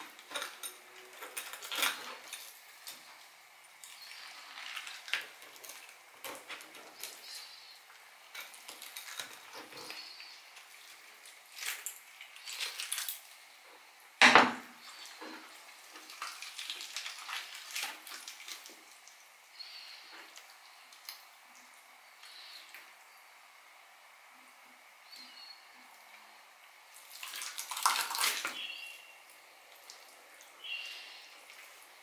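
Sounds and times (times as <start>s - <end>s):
knock on cutting board: 14.2s - 14.6s.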